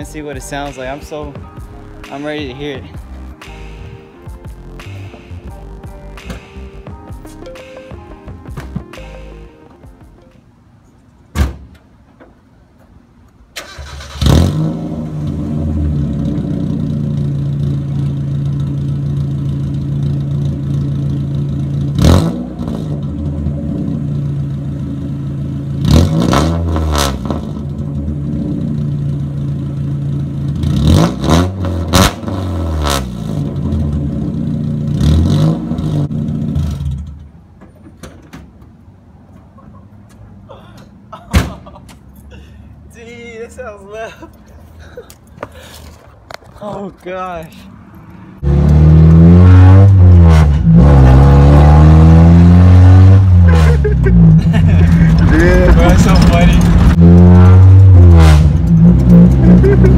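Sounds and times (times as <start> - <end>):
loud open-piped car engine revving: 14.0 - 37.2, 48.3 - 59.9.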